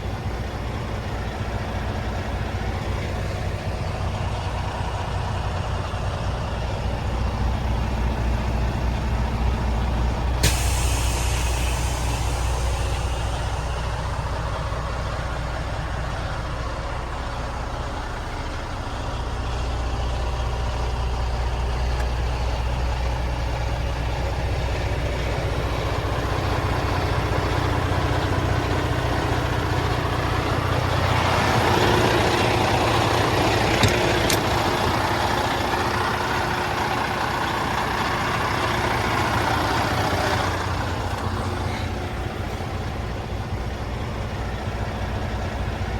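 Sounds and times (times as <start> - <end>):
truck diesel engine running: 0.0 - 45.9
air hissing: 10.4 - 14.7.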